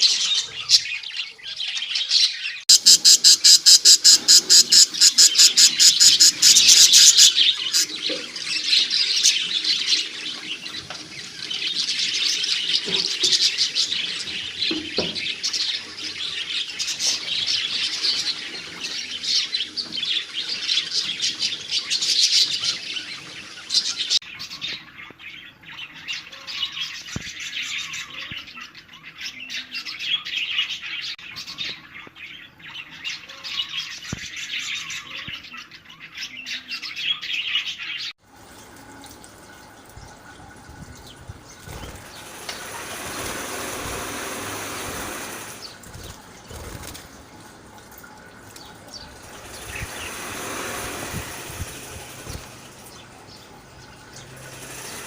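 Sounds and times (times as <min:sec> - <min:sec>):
budgerigars chattering: 0:01.7 - 0:10.2
even rushing noise: 0:49.2 - 0:52.8.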